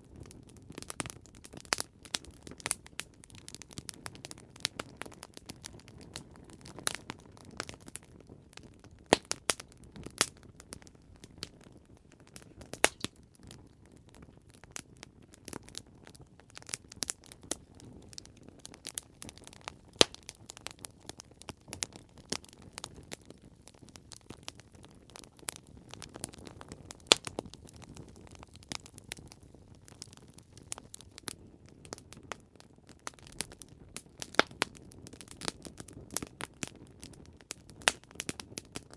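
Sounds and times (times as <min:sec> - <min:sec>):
campfire crackling and popping: 0:00.0 - 0:38.9
low rumble of flames: 0:00.0 - 0:38.9.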